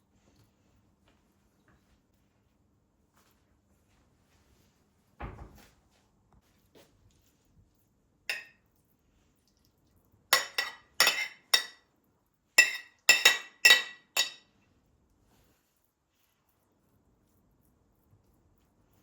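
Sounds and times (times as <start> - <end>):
glass pieces clinking: 10.4 - 11.8, 12.6 - 14.4.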